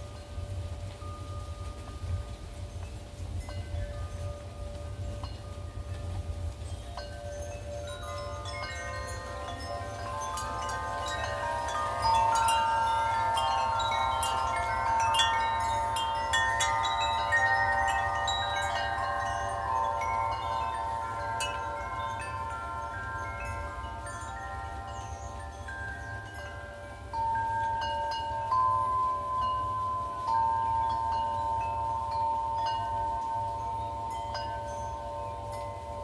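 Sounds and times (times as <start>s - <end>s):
wind chimes ringing: 0.0s - 36.0s.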